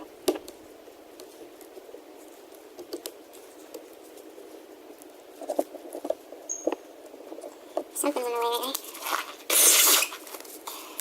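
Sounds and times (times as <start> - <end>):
faint clicks and taps: 0.2 - 4.3.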